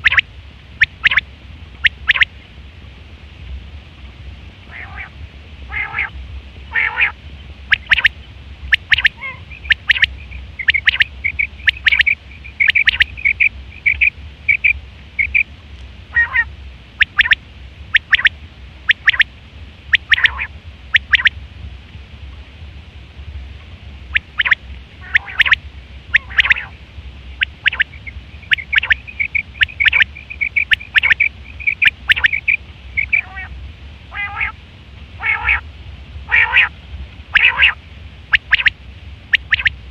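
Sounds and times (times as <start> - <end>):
low steady hum: 0.0 - 39.9
quail calling: 0.8 - 1.2, 1.8 - 2.3, 4.7 - 15.5, 16.1 - 18.3, 18.9 - 19.3, 19.9 - 21.3, 24.1 - 34.6, 35.2 - 35.6, 36.3 - 36.7, 37.3 - 38.7, 39.3 - 39.8.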